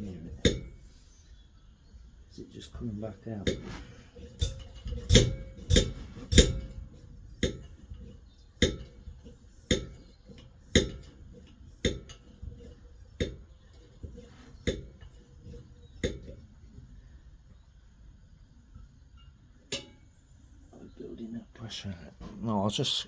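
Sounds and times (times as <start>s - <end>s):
stove hand pump metallic clacks: 0.0s - 0.9s, 3.0s - 16.5s, 19.6s - 20.0s.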